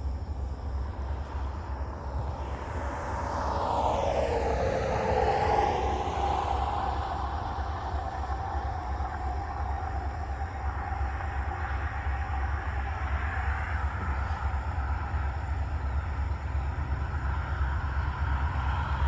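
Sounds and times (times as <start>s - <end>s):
locomotive engine rumble: 0.0s - 19.0s
train whooshing past: 1.6s - 11.5s.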